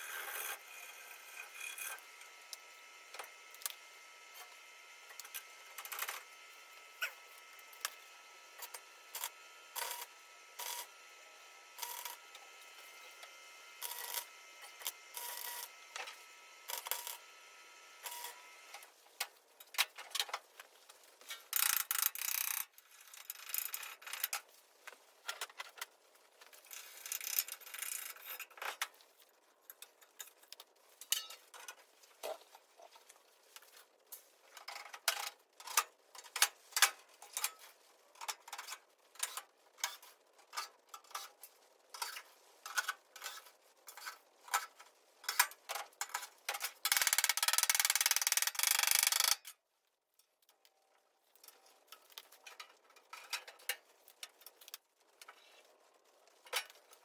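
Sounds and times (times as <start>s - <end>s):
metallic clanks of tools and sheet metal: 31.0s - 31.8s.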